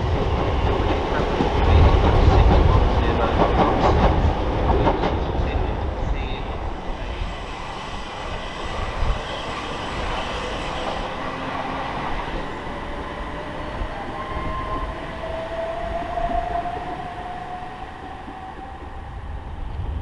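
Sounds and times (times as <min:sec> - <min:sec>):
train wheel and rail noise: 0:00.0 - 0:20.0.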